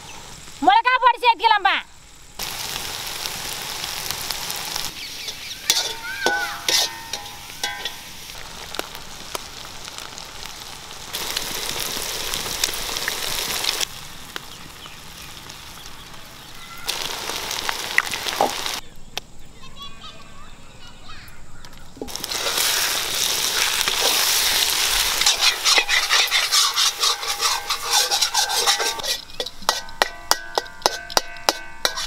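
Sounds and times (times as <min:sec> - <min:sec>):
masala sizzling in a pan: 0:00.0 - 0:18.8, 0:22.0 - 0:32.0
metal spatula striking a pan: 0:05.3 - 0:08.2, 0:25.1 - 0:32.0.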